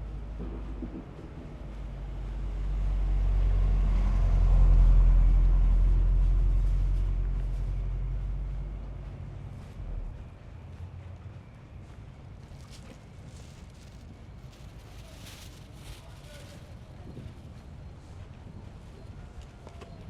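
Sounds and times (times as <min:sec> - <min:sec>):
motor vehicle passing by: 0:00.4 - 0:11.2.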